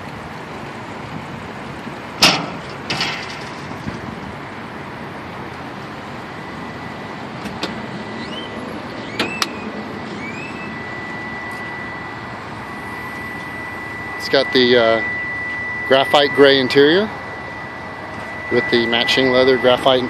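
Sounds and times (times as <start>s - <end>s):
steady background noise: 0.0s - 20.0s
thin high tone: 4.4s - 20.0s.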